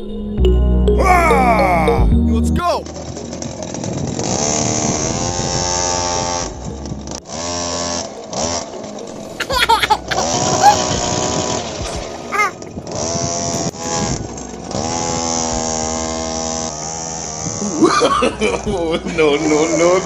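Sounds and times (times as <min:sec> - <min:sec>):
high-pitched voice: 0:01.0 - 0:02.2, 0:12.3 - 0:12.6
small motor whining: 0:02.9 - 0:17.9.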